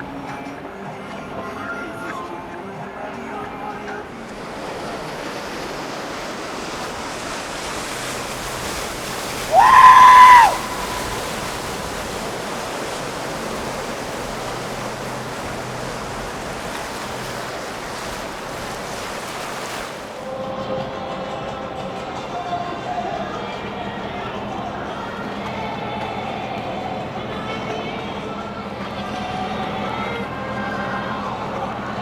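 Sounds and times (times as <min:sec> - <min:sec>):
steady rushing noise: 0:02.2 - 0:26.2.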